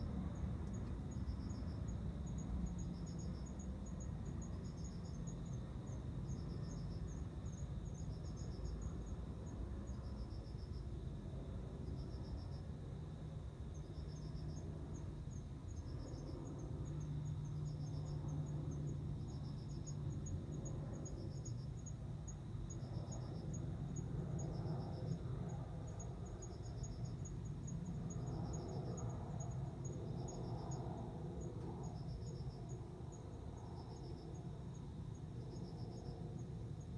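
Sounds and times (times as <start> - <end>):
cricket trilling: 0.0 - 36.9.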